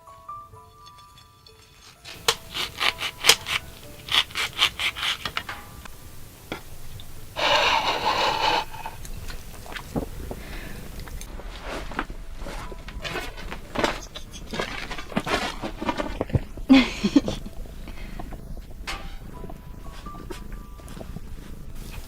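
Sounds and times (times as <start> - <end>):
quick scraping strokes: 1.8 - 5.6, 7.4 - 9.0
long rushing scrape: 6.8 - 11.0.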